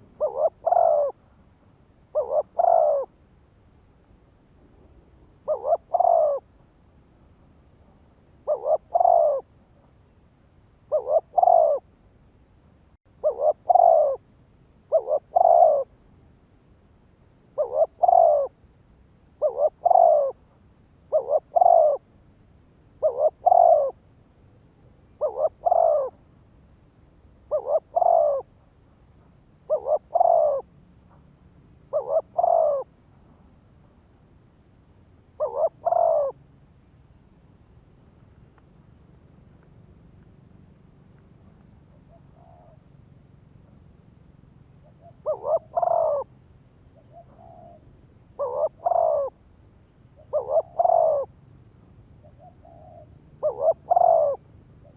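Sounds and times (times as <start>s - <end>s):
dove cooing: 0.0s - 1.4s, 2.1s - 3.2s, 5.3s - 6.6s, 8.4s - 9.9s, 10.9s - 11.9s, 13.1s - 14.3s, 14.9s - 16.0s, 17.5s - 18.6s, 19.4s - 20.5s, 21.1s - 22.1s, 23.0s - 24.1s, 24.8s - 26.2s, 27.4s - 28.7s, 29.6s - 31.2s, 31.9s - 33.0s, 35.4s - 36.4s, 41.9s - 42.9s, 44.8s - 49.4s, 50.2s - 51.4s, 52.2s - 54.9s.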